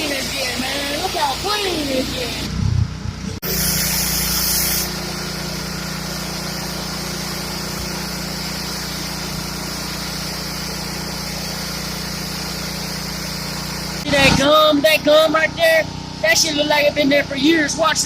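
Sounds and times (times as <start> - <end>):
water jet hissing on concrete: 0.0 - 2.5, 3.4 - 14.3
pressure washer engine running: 0.0 - 18.0.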